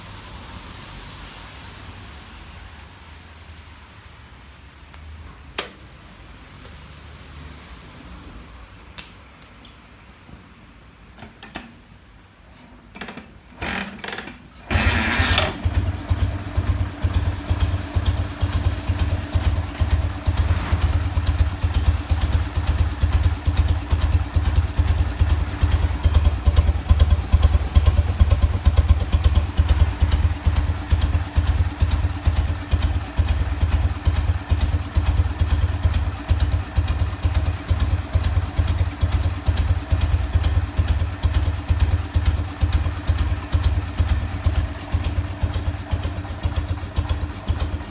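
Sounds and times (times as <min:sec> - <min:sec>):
motorcycle engine starting and running: 0:13.0 - 0:47.9.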